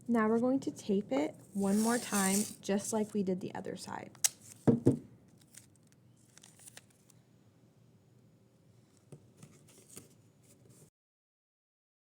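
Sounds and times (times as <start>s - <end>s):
adhesive tape tearing and crinkling: 1.7s - 2.6s.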